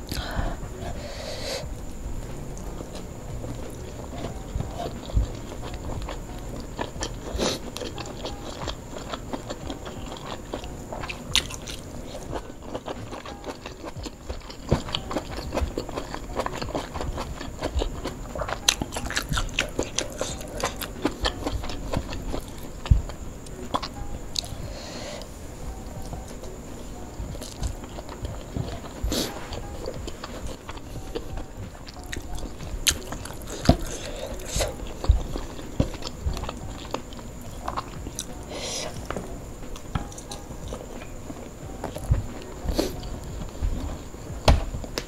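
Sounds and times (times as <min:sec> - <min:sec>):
person chewing with mouth clicks: 0:00.0 - 0:44.1
crunchy bites: 0:02.6 - 0:24.6.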